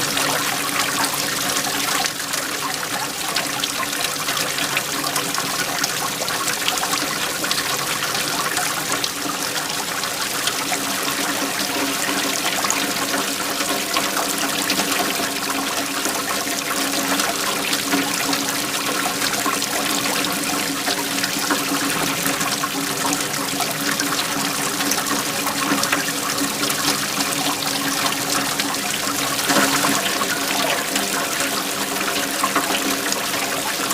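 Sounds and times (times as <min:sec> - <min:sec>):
waterfall splashing: 0:00.0 - 0:33.9.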